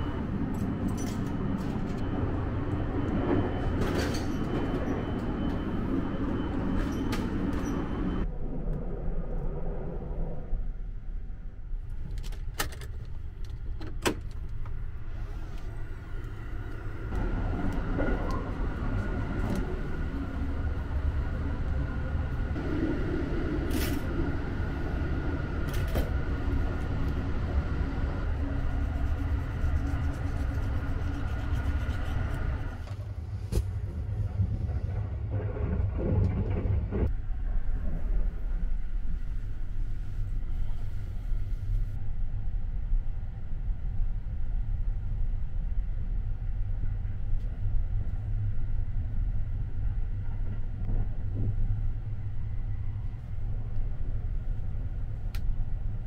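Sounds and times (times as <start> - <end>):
thin steady whine: 0.0 - 11.8, 14.6 - 34.3
train rumble: 0.0 - 56.0.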